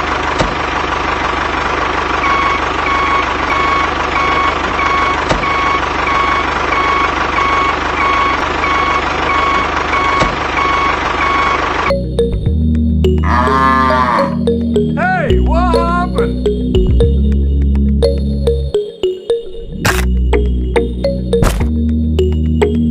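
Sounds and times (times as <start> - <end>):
tractor engine running: 0.0 - 13.2.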